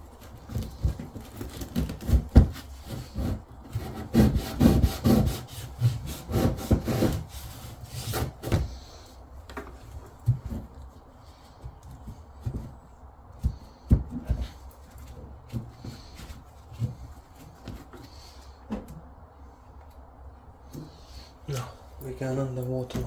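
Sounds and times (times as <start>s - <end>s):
rubbing and scraping strokes: 0.1s - 9.2s.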